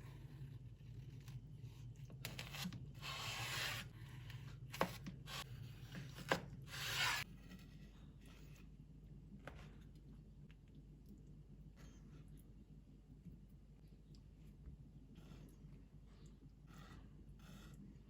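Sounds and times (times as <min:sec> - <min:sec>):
low steady hum: 0:03.8 - 0:18.0
rubbing or scraping strokes: 0:06.7 - 0:07.3.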